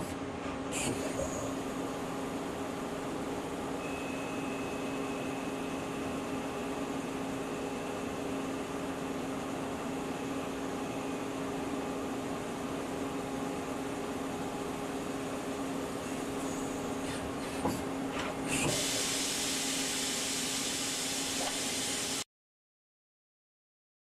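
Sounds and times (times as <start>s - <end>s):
thin high whine: 3.8s - 9.0s.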